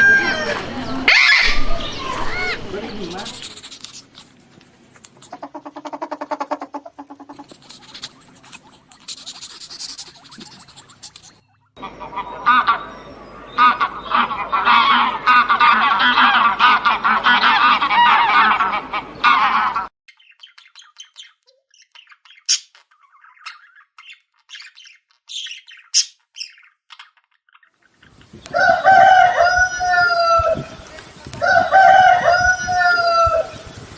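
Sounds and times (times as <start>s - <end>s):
fowl chattering: 0.0s - 33.9s
goose honking: 5.3s - 19.9s, 28.1s - 33.9s.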